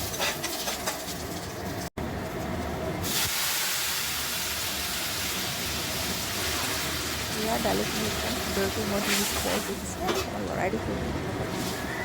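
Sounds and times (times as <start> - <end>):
food sizzling in hot oil: 3.0 - 10.0.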